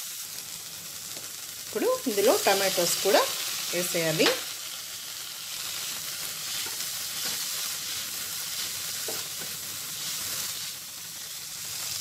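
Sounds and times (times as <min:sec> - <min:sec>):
vegetables sizzling in butter: 0:00.0 - 0:12.0
spatula scraping pan: 0:06.4 - 0:10.6.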